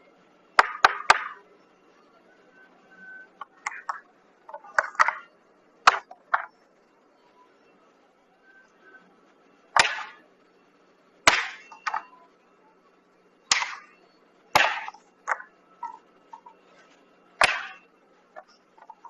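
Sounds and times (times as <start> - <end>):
sharp hard knocks: 0.6 - 1.4, 9.8 - 10.2, 11.3 - 12.0, 13.5 - 13.9, 14.6 - 15.4, 17.4 - 17.8.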